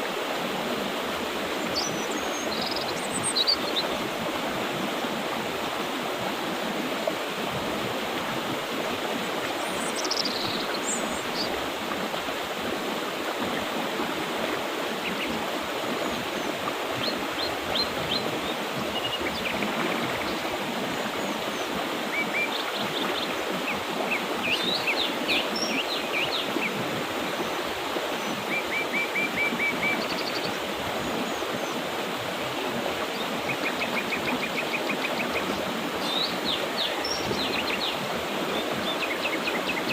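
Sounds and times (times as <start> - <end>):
river rushing: 0.0 - 39.9
small birds chirping: 9.6 - 11.6.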